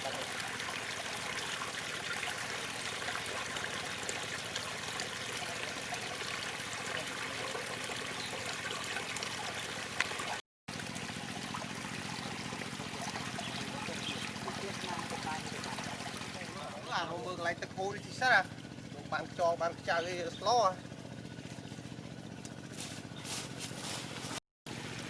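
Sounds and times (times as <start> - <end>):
running water: 0.0 - 18.5.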